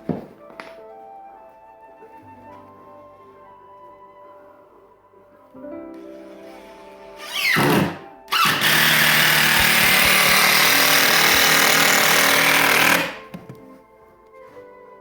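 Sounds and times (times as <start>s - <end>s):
handheld power tool whining: 6.0s - 13.3s.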